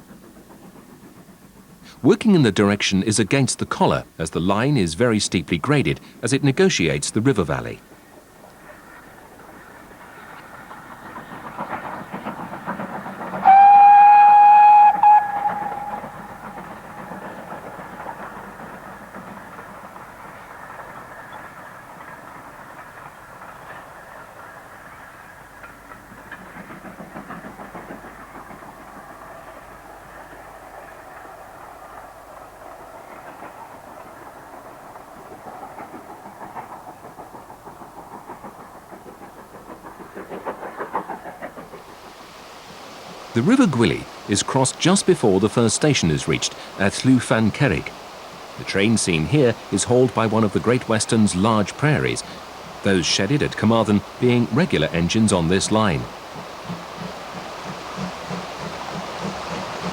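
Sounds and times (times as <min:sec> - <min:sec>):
steam locomotive exhaust beat: 0:00.0 - 0:59.9
steam locomotive whistle: 0:13.4 - 0:18.0.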